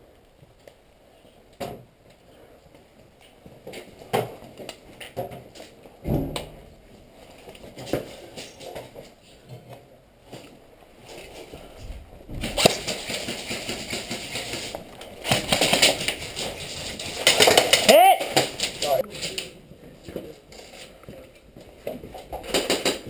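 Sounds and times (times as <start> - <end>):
airsoft guns firing: 17.1 - 18.9.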